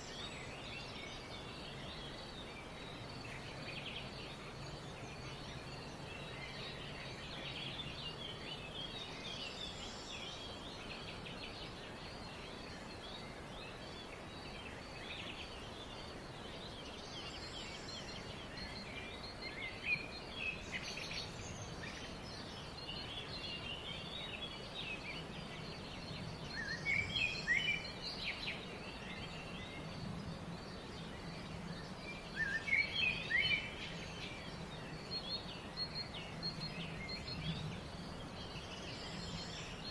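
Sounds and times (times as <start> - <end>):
background hiss: 0.0 - 39.9
birds chirping: 0.0 - 39.9.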